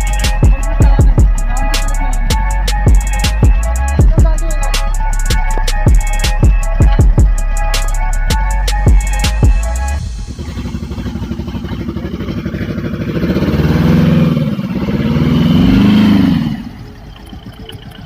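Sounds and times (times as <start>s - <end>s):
small engine revving: 9.6s - 18.0s.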